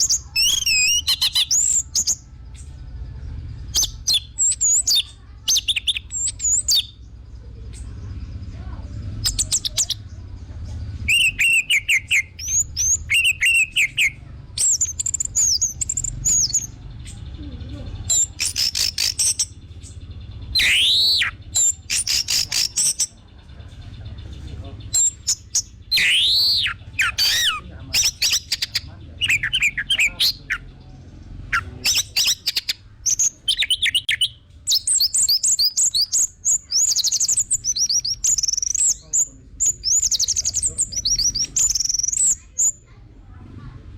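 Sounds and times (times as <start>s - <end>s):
low hum: 1.7s - 4.4s
thrush singing: 18.0s - 43.6s.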